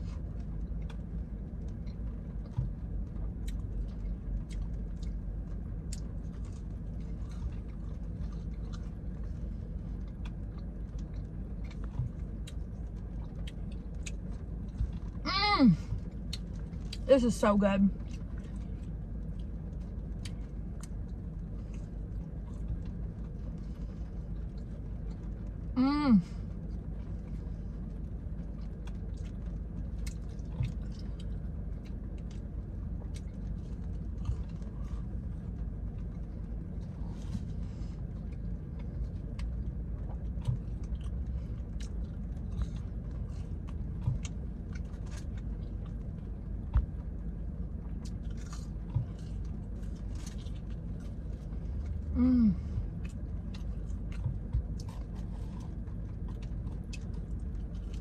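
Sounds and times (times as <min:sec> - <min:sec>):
person chewing food: 0:00.0 - 0:15.2, 0:16.0 - 0:17.0, 0:18.0 - 0:25.6, 0:26.7 - 0:58.0
low background hum: 0:00.0 - 0:58.0
person humming mm: 0:52.1 - 0:52.8.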